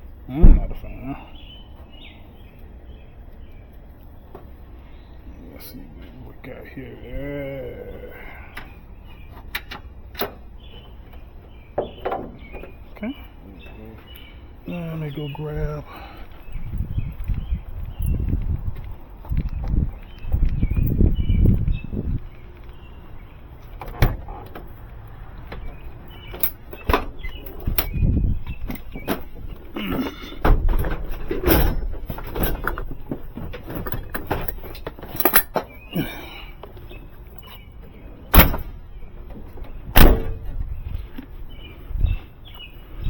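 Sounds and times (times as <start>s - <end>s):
tools clanking on a car: 8.2s - 14.4s, 22.4s - 42.8s
loud bangs: 38.2s - 38.9s, 39.8s - 40.6s.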